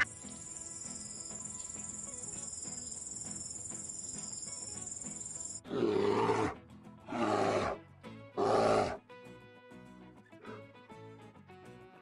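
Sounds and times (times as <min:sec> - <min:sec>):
background music: 0:00.0 - 0:12.0
bear roaring: 0:05.7 - 0:07.8, 0:08.4 - 0:09.0.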